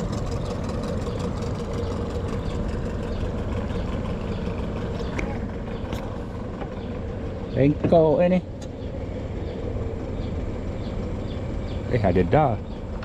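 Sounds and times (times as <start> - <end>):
boat motor droning: 0.0 - 13.0.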